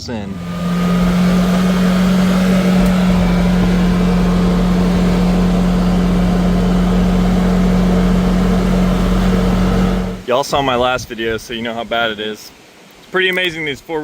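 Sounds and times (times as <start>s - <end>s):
engine idling: 0.0s - 10.2s.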